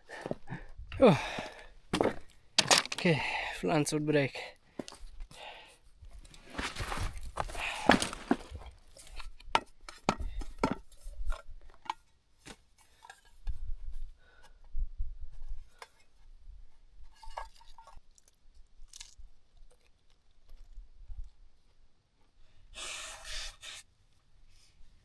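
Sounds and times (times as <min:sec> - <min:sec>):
footsteps on stony trail: 0:00.0 - 0:03.4, 0:04.7 - 0:05.5, 0:06.1 - 0:09.2.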